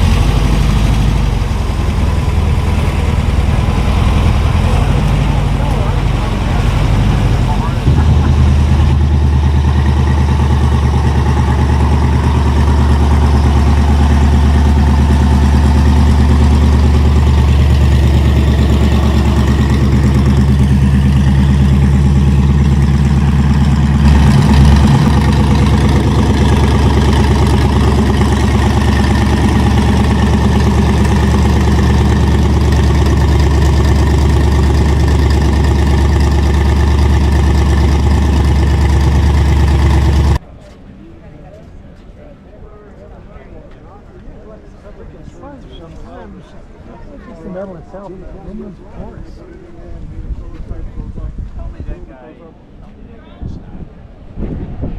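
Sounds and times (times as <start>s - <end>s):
car engine idling: 0.0s - 40.4s.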